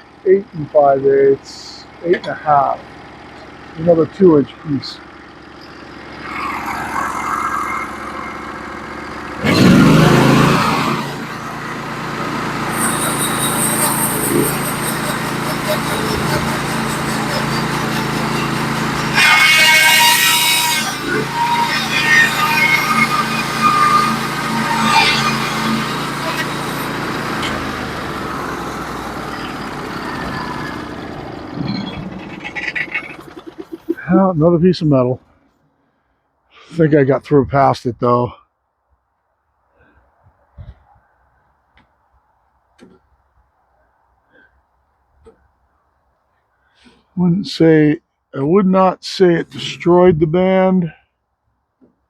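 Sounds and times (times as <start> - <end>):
sawmill engine revving: 0.0 - 35.2, 46.8 - 50.9.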